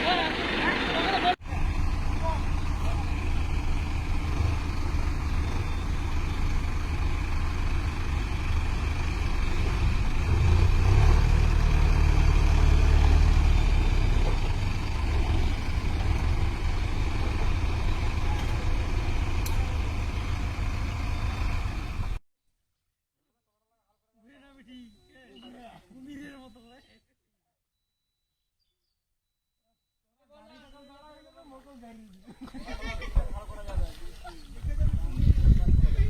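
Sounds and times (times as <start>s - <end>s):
tractor diesel engine rumbling: 0.0s - 22.2s.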